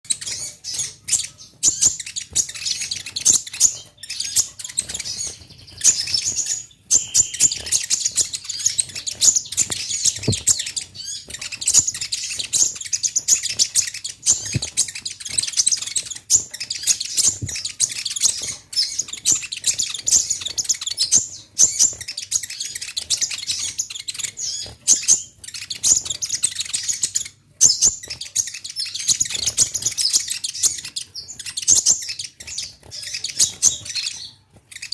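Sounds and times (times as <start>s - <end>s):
sunbird high thin chirps: 0.2s - 20.8s.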